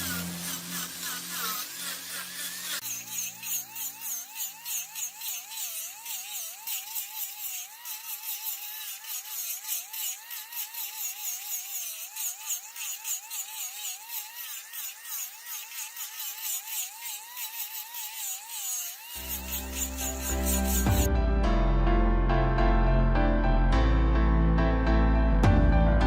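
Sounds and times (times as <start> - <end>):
lathe motor whine: 0.0 - 12.2, 12.8 - 21.1
cutting tool ticking and scraping: 0.0 - 21.1.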